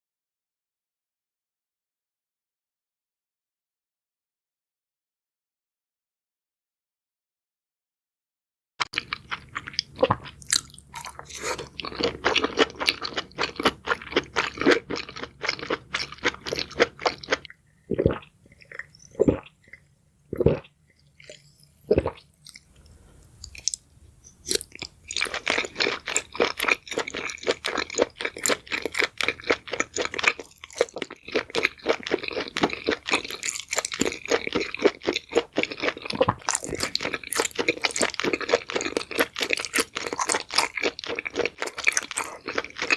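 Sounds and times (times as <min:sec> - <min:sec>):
person chewing crunchy food: 0:08.8 - 0:42.9.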